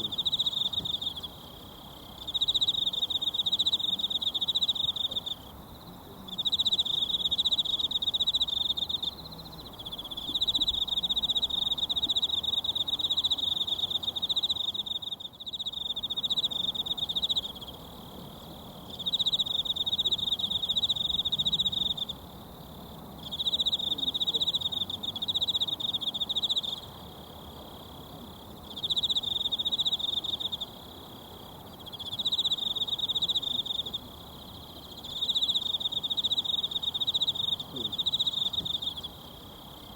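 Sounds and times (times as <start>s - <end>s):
insect trilling: 6.3s - 17.9s, 28.3s - 39.9s.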